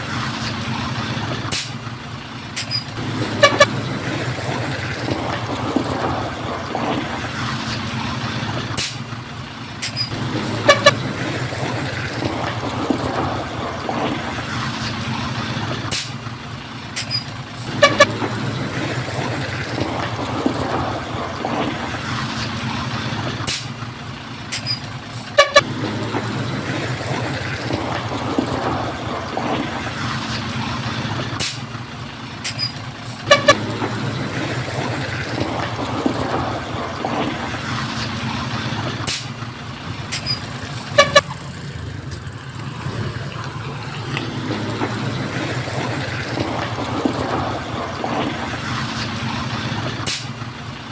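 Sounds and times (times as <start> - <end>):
construction machinery engine running: 0.0 - 50.9
short horn-like toot: 3.3 - 3.7, 25.4 - 25.6.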